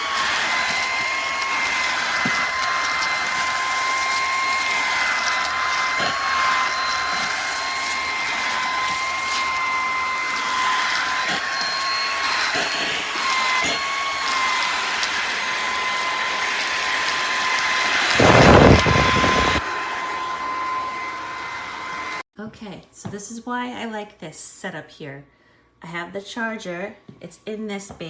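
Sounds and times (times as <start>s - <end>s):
stick vacuum running: 0.0s - 22.2s.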